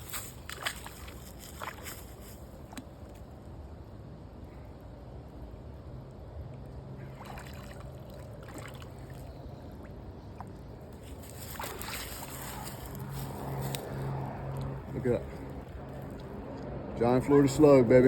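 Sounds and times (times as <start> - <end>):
shallow water splashing: 0.0 - 2.2, 7.0 - 12.6
steady low hum: 0.0 - 18.0.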